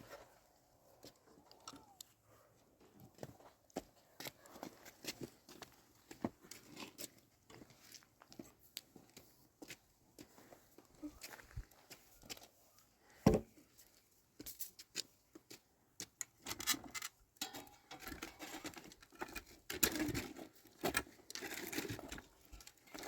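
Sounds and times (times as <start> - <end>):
objects clicking and scraping: 16.2 - 23.0.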